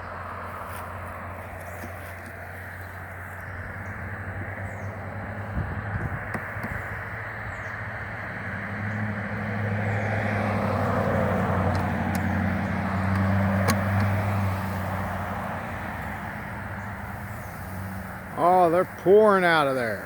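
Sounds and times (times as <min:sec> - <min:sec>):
honeybees buzzing: 0:01.4 - 0:20.0.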